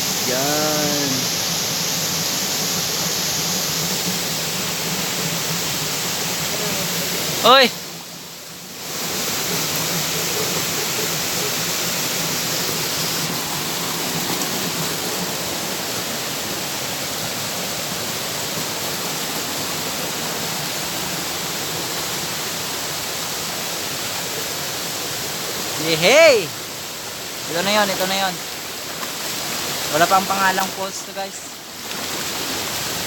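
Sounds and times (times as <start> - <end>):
rushing waterfall: 0.0 - 33.0.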